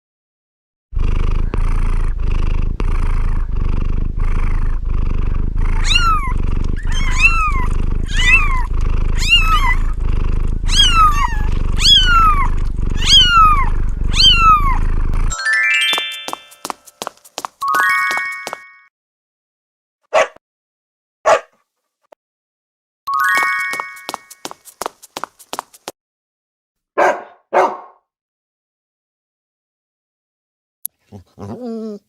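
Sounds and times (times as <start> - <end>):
cat purring: 1.0 - 15.4
cat meowing: 5.7 - 10.0, 10.6 - 14.9.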